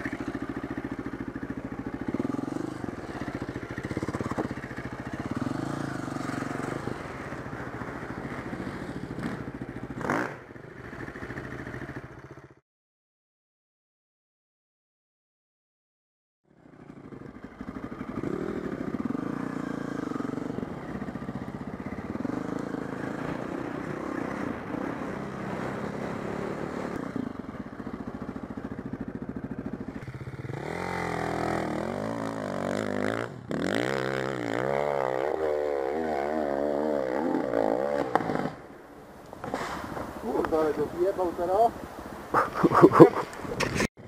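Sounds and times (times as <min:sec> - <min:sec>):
dirt bike engine revving: 0:00.0 - 0:12.4, 0:17.6 - 0:27.4, 0:28.0 - 0:38.7.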